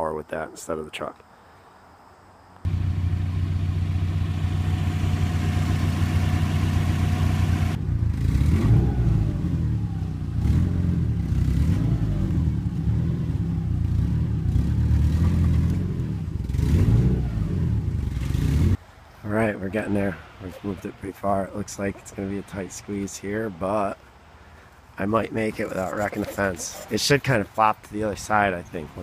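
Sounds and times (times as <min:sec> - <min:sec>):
car engine revving under load: 0:02.7 - 0:18.8.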